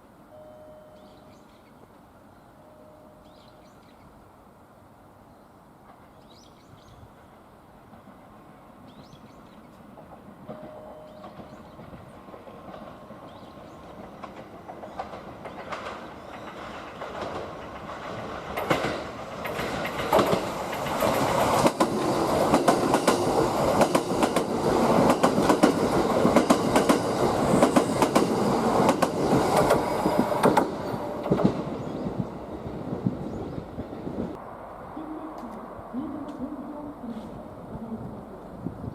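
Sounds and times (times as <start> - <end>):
electric train running past: 5.6 - 38.9
wheels clattering over rail joints: 10.0 - 31.9.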